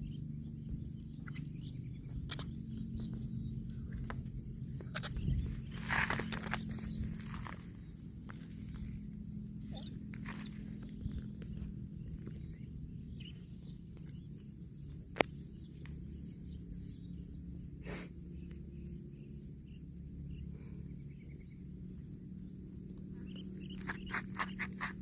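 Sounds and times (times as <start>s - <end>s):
low rumble: 0.0s - 23.8s
faint bird chirps: 9.6s - 25.0s.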